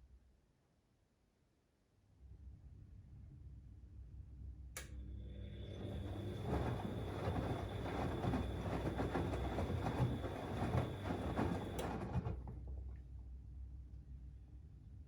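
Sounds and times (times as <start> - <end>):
washing machine motor whine: 5.1 - 12.6
washing machine drum tumbling: 6.0 - 12.6.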